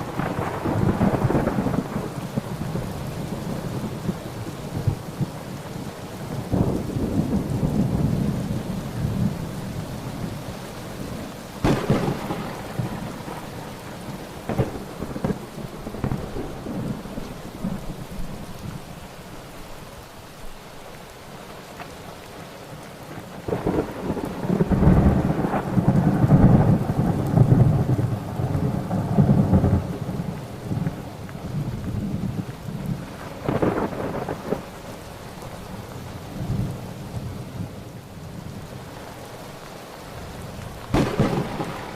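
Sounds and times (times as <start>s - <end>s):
thunder cracking and rumbling: 0.0s - 10.4s, 11.6s - 18.4s, 23.3s - 34.8s, 40.3s - 41.9s
steady rain: 0.0s - 41.9s.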